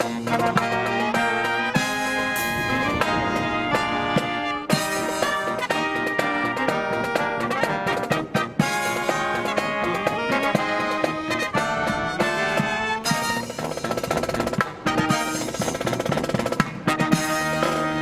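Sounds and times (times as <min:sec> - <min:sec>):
brass marching band playing: 0:00.0 - 0:18.0.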